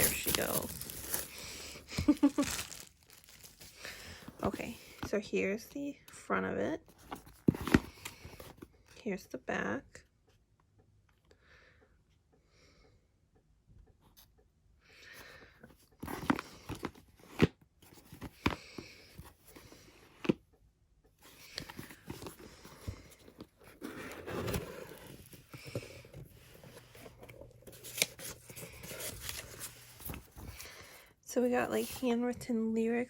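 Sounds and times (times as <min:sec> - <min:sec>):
plastic wrap crinkling and tearing: 0:00.0 - 0:04.2.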